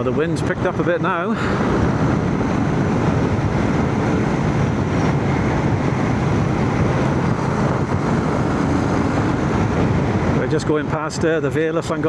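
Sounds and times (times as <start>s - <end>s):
gusting wind rush: 0.0s - 12.0s
motorcycle engine: 1.5s - 10.4s.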